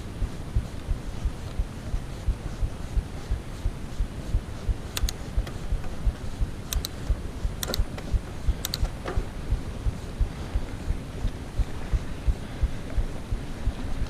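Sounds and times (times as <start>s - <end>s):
wind rumble on microphone: 0.0s - 14.0s
sharp clicks: 4.8s - 9.3s.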